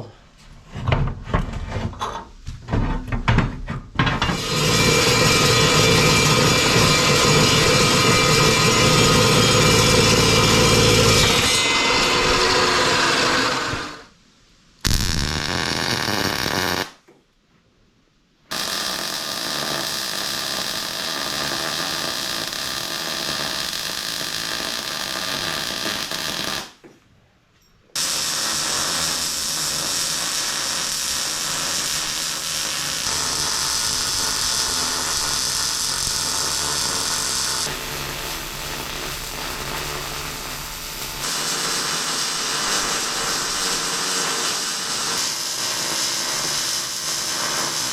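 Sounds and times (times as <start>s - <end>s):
power tool running on steel: 4.3s - 14.1s, 28.0s - 47.9s.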